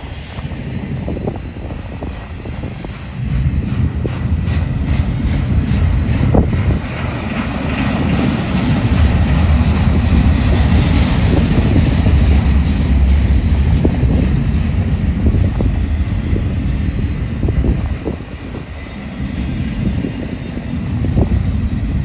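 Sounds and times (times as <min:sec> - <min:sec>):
freight train wheels rumbling: 0:00.0 - 0:22.0
freight cars knocking and clanking: 0:01.3 - 0:18.6.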